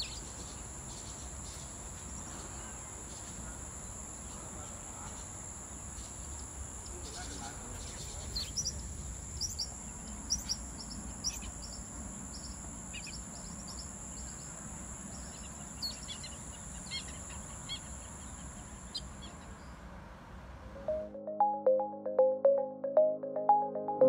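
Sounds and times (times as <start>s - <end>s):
small birds chirping: 6.0s - 19.8s
bell-like plucked music: 20.8s - 24.0s.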